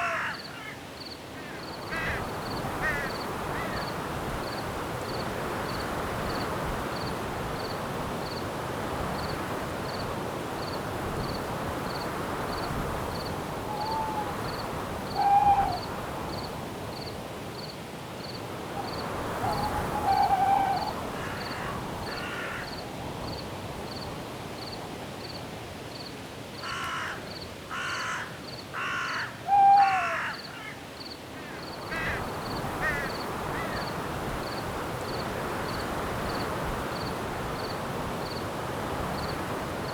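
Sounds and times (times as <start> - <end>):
crow cawing: 0.0 - 0.8, 1.4 - 3.8, 19.4 - 22.8, 26.6 - 30.8, 31.4 - 33.8
wind in the trees: 0.0 - 27.8, 28.4 - 39.9
cricket chirping: 0.3 - 8.5, 9.2 - 25.4, 30.3 - 38.5.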